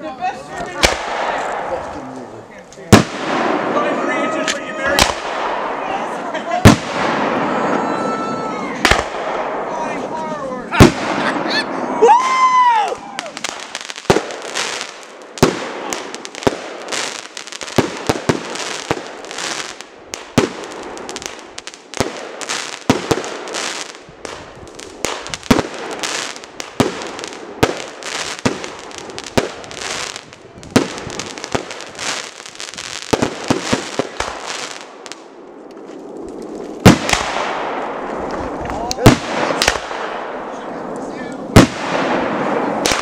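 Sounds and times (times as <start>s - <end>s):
fireworks crackling: 0.0s - 43.0s
firework shells bursting: 2.7s - 5.8s, 8.8s - 9.7s, 13.4s - 43.0s.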